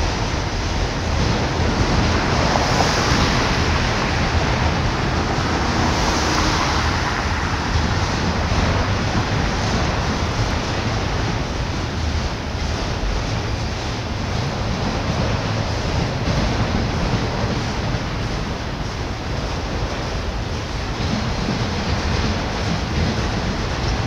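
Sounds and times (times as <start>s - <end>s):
freight train rolling past: 0.0s - 24.0s
wind buffeting microphone: 0.0s - 24.0s
car passing: 1.3s - 12.8s.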